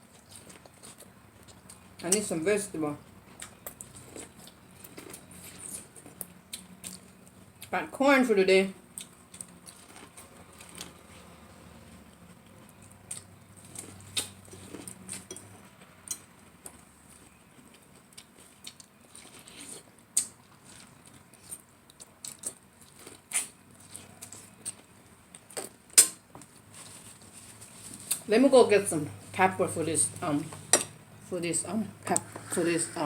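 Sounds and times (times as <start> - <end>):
chewing and mouth smacks: 3.3 - 7.7, 12.6 - 26.5.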